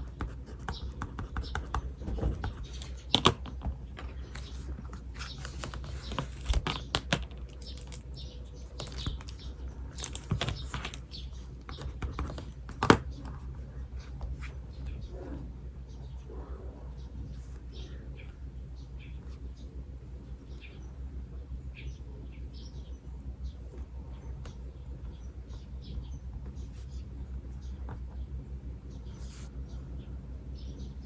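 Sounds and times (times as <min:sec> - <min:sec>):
pen scratching on paper: 0:00.0 - 0:03.4, 0:29.1 - 0:29.6
pen tapping: 0:00.1 - 0:04.5, 0:11.6 - 0:13.1.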